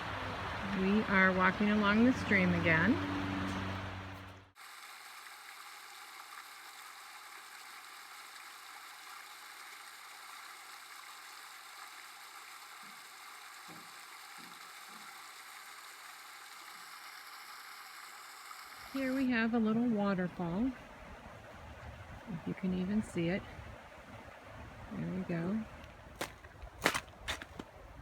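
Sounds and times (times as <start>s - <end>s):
stream water running: 0.0s - 28.0s.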